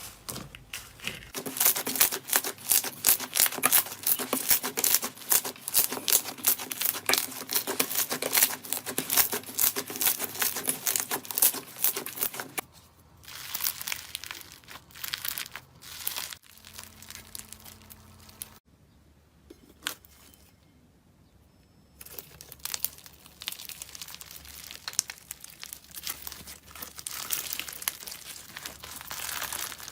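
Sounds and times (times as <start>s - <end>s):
crunchy material crackling: 0.9s - 18.6s, 22.0s - 29.9s.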